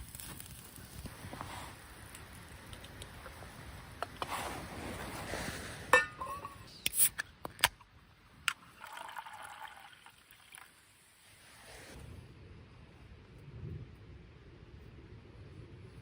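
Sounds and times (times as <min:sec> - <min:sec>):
hiss: 0:00.0 - 0:05.9, 0:10.9 - 0:12.1.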